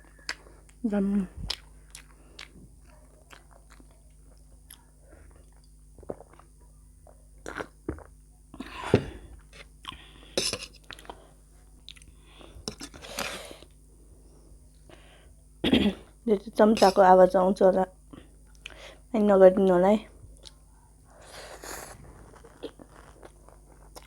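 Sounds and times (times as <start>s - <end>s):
chewing and crunching snack: 1.4s - 8.7s, 10.6s - 13.8s, 20.3s - 24.0s.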